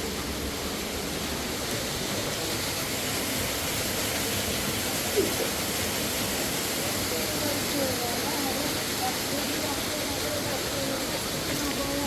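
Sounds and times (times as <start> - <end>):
fast river water rushing: 0.0 - 12.0.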